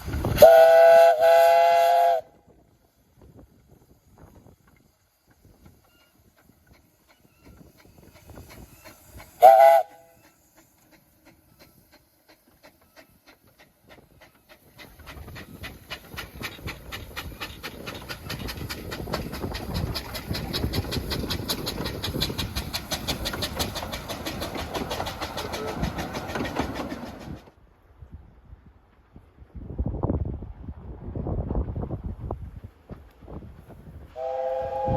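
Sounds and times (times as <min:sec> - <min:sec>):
approaching train beat: 0:00.0 - 0:34.9
steam locomotive whistle: 0:00.3 - 0:02.4, 0:09.4 - 0:10.3, 0:34.1 - 0:34.9.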